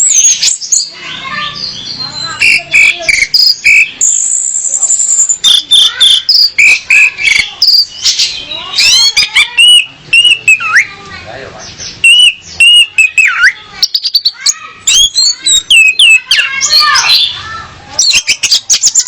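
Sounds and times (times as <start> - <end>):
thrush singing whistled notes: 1.8 - 11.0, 12.0 - 17.4.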